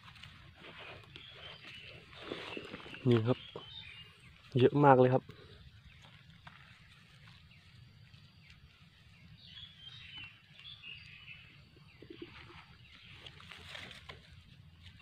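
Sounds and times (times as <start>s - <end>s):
small birds chirping: 0.0s - 15.0s
rustling: 12.9s - 15.0s.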